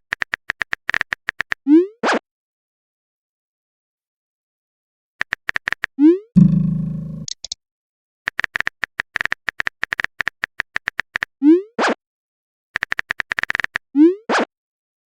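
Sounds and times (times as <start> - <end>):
loud buzzing tone: 6.4 - 7.3
rising message bloop: 6.4 - 7.4
phone keyboard typing clicks: 6.4 - 7.6.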